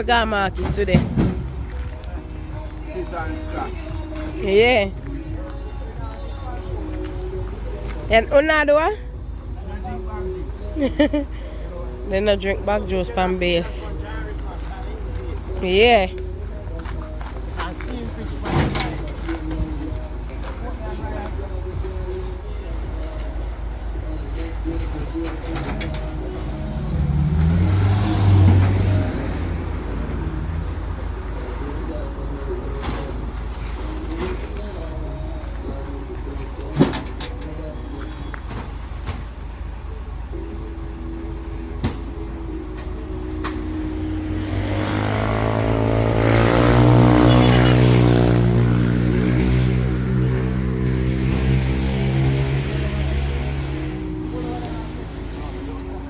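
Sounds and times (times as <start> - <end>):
vehicle engine revving: 26.2 - 31.0, 44.1 - 54.2.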